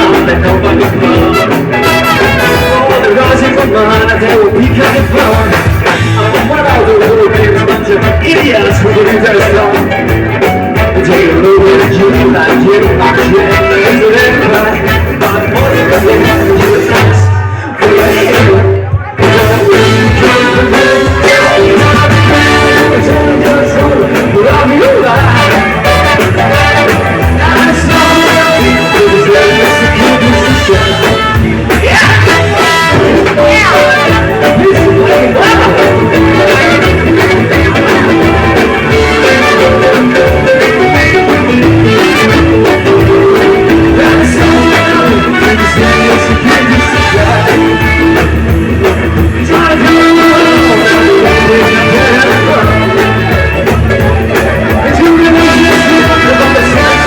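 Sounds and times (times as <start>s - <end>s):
live band guitar music: 0.0s - 57.0s
person singing: 0.0s - 57.0s.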